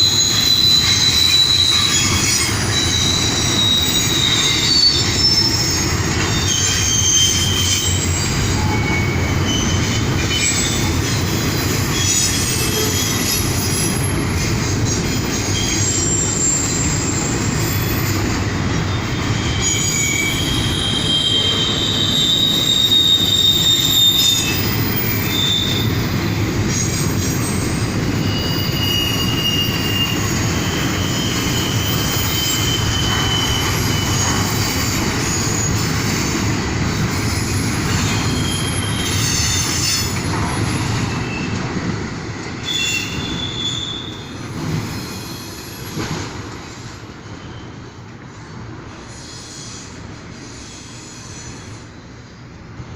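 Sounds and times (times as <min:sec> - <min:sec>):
high-pitched wheel squeal: 0:00.0 - 0:11.0, 0:11.9 - 0:14.3, 0:15.4 - 0:26.1, 0:26.7 - 0:35.9, 0:37.5 - 0:41.6, 0:42.6 - 0:46.0
freight train rumbling: 0:00.0 - 0:52.9.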